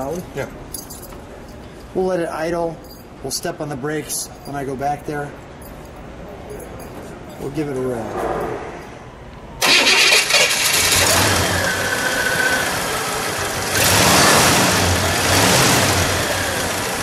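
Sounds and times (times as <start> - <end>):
car engine starting and idling: 9.4 - 17.0
engine revving: 9.6 - 17.0.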